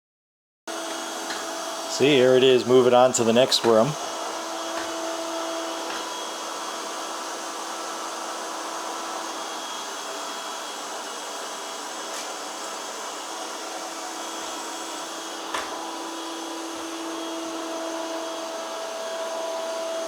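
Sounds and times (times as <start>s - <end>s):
robot vacuum running: 0.7s - 20.0s.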